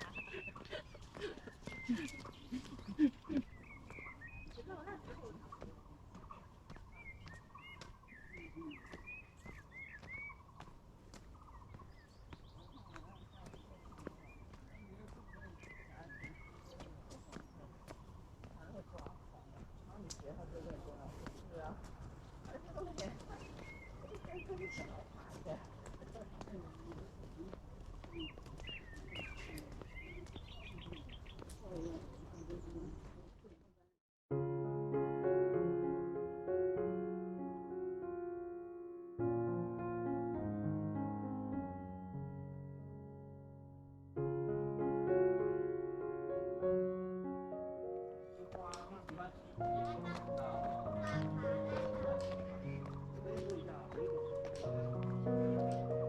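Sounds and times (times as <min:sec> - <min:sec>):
birds whistling: 0:00.0 - 0:01.0, 0:01.6 - 0:04.8, 0:06.7 - 0:10.6
bird chirping: 0:00.0 - 0:19.8, 0:23.3 - 0:25.6, 0:27.9 - 0:33.0.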